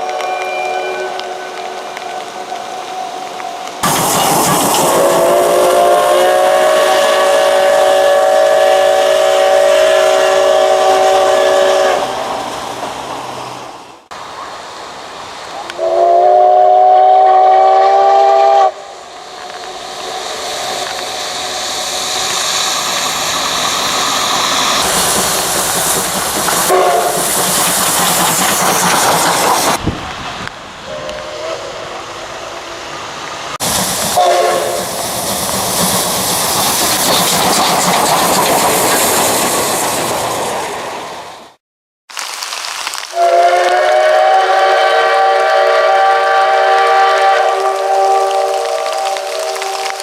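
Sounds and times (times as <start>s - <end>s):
steam locomotive whistle: 0.0s - 2.7s, 3.9s - 12.3s, 15.7s - 18.9s, 26.7s - 27.3s, 34.2s - 35.2s, 43.2s - 50.0s
steam hissing: 0.6s - 41.3s, 43.1s - 50.0s.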